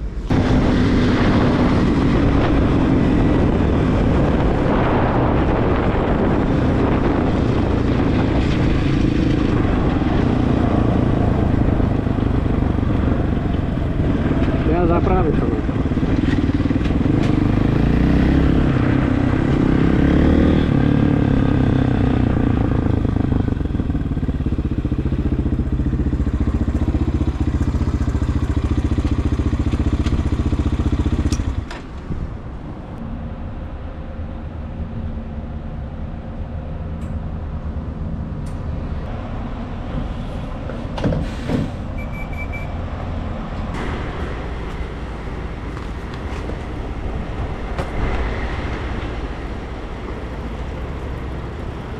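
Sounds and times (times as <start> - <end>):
motorcycle engine running: 0.2 - 31.7, 43.8 - 51.9.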